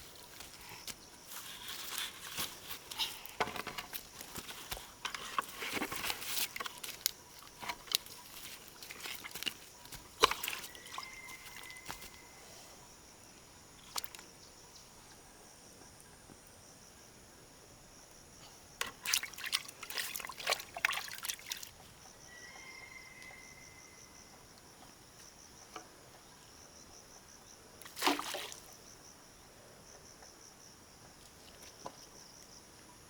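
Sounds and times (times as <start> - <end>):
insects chirping: 0.0 - 33.0
water splashing and trickling: 1.6 - 12.2, 18.8 - 21.9, 27.8 - 28.7.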